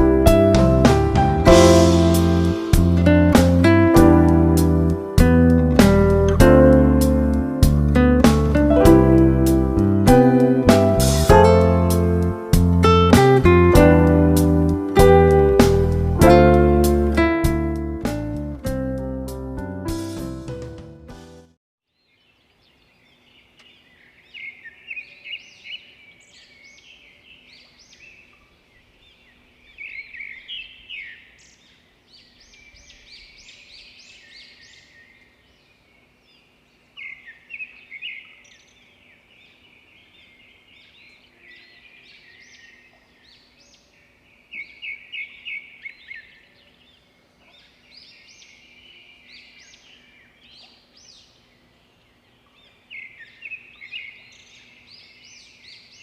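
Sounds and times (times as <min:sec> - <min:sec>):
small birds chirping: 0:21.9 - 0:56.0.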